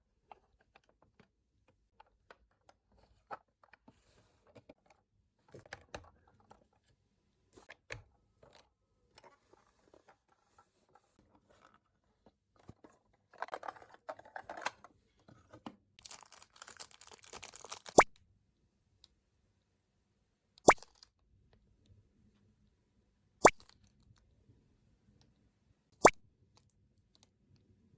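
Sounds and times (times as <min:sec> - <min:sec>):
packaging crinkling and tearing: 0:16.0 - 0:18.0.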